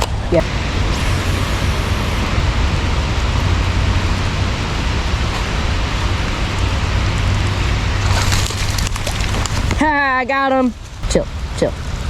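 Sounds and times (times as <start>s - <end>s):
low rumble: 0.0s - 12.0s
rain hissing: 0.0s - 12.0s.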